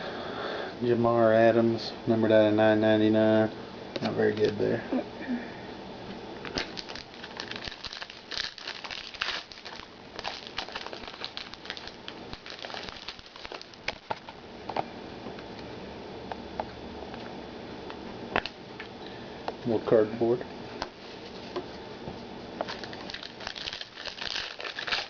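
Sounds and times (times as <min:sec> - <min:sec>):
wrapper crinkling and tearing: 0:06.5 - 0:14.4, 0:22.7 - 0:25.0.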